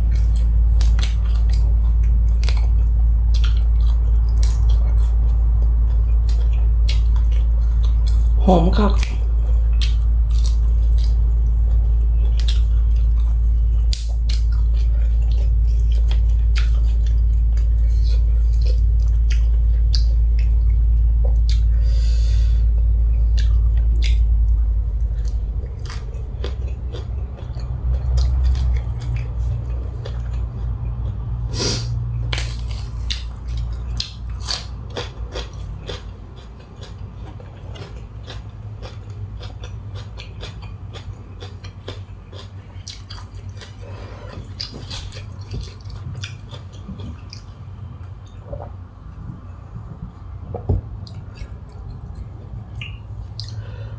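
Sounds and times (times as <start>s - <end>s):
loud low rumble: 0.0s - 36.4s, 43.8s - 53.9s
person chewing: 0.0s - 53.9s
mouth and food clicks: 50.5s - 53.6s.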